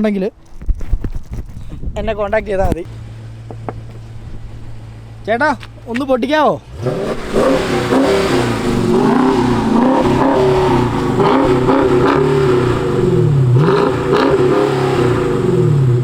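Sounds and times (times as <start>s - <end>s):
car engine revving: 2.8s - 16.0s.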